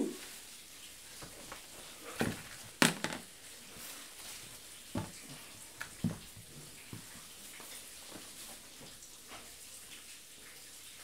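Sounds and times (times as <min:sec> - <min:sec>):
sharp knocks and clatters: 0:02.2 - 0:03.3.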